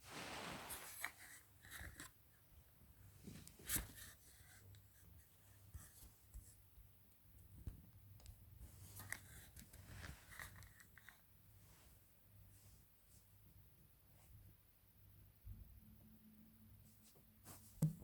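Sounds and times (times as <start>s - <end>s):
faint rustling: 0.0s - 2.1s.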